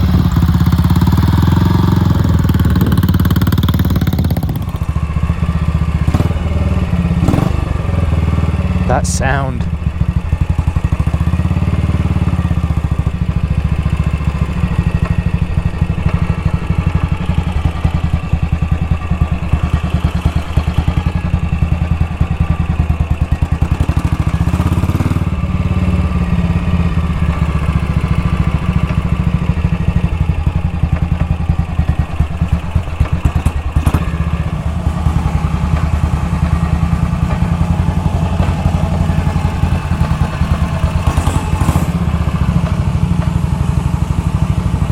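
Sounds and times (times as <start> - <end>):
clutch chattering: 0.0 - 6.2
motorcycle engine running: 0.0 - 44.9.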